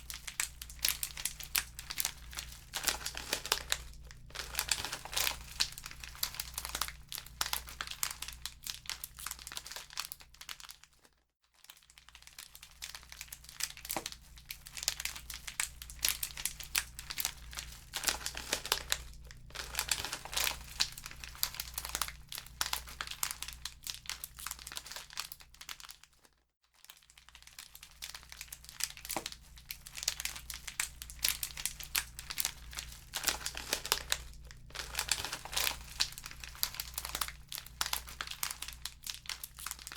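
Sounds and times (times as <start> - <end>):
wood fire crackling: 0.0 - 7.5, 15.8 - 23.2, 30.6 - 39.3.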